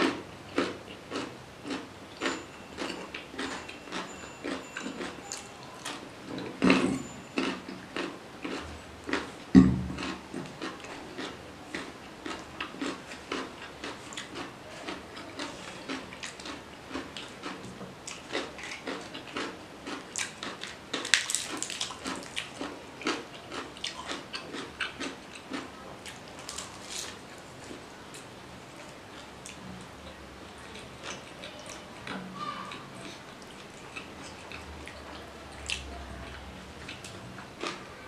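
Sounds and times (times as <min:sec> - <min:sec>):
person chewing with mouth clicks: 0:00.0 - 0:29.6, 0:30.6 - 0:37.9
crisp crackle: 0:20.2 - 0:22.4, 0:26.4 - 0:27.8.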